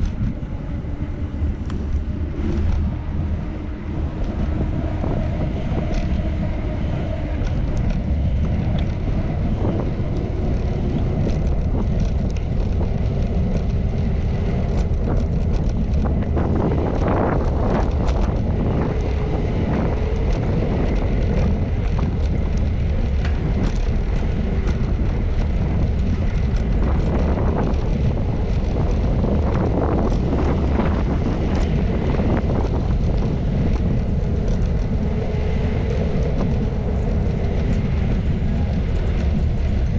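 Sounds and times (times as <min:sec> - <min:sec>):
passing traffic: 0:00.0 - 0:39.9
wind buffeting microphone: 0:00.0 - 0:39.9.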